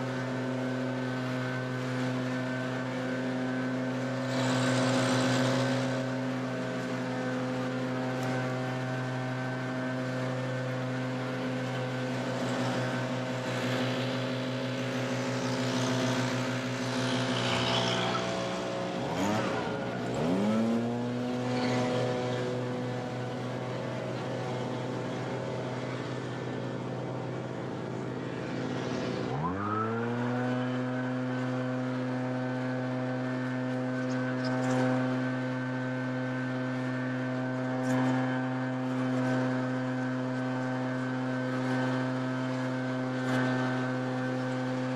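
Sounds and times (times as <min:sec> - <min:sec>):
leaf blower engine revving: 0:00.0 - 0:44.9.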